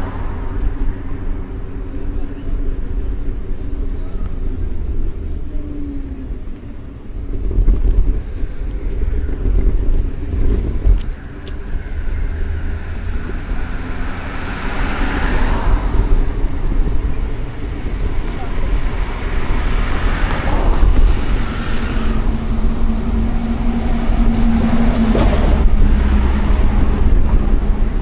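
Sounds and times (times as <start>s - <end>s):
traffic low rumble: 0.0s - 28.0s
vehicle passing close: 11.7s - 28.0s.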